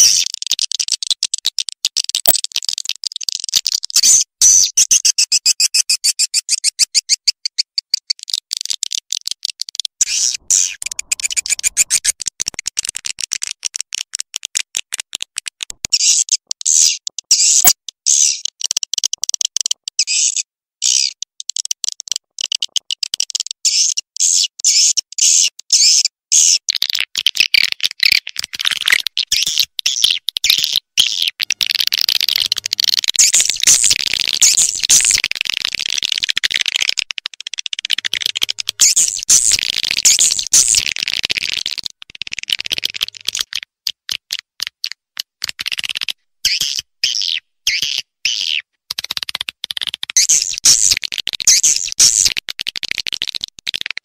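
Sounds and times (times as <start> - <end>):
swiftlet chirps chattering: 10.0 - 12.1, 31.4 - 37.0, 37.9 - 40.9.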